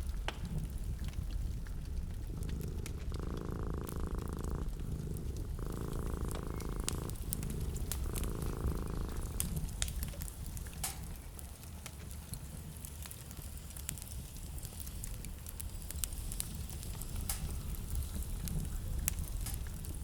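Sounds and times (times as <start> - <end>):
steady low rumble: 0.0 - 10.7
fireplace crackling: 0.0 - 20.0.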